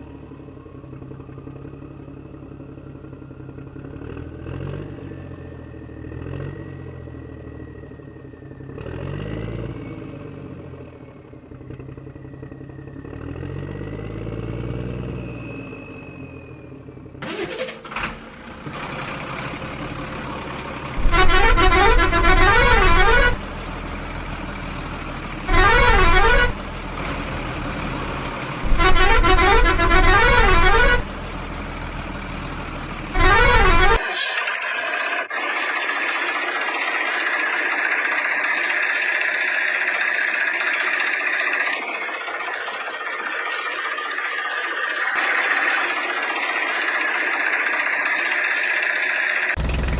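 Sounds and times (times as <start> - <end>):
vehicle engine revving: 20.8 - 23.6, 25.4 - 49.9
vehicle horn blasts: 21.0 - 23.4, 25.5 - 26.6, 28.6 - 31.2, 33.2 - 34.0.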